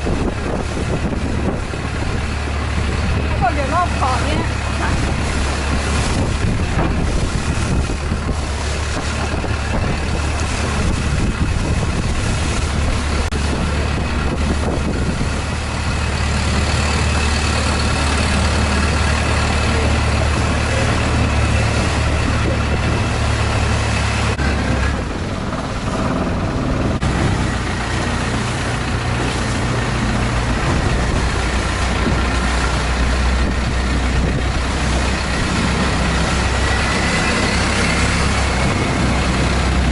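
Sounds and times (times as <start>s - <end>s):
boat engine drone: 0.0s - 39.9s
rushing wind and water: 0.0s - 39.9s.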